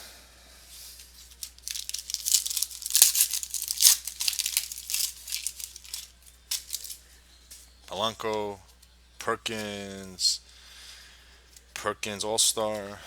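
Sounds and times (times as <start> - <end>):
card wrapper tearing and crinkling: 1.3 - 7.0.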